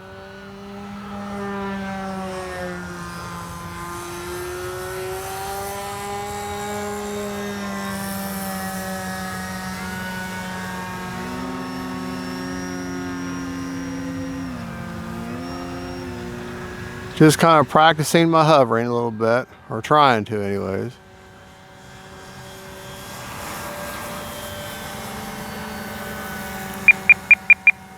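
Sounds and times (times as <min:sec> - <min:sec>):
electric model plane motor whining: 0:00.0 - 0:17.5, 0:21.0 - 0:27.9.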